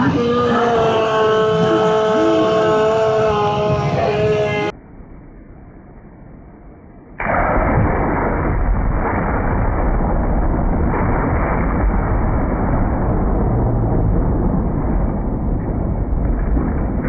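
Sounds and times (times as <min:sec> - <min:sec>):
thunder crack and rumbling: 0:07.2 - 0:17.0.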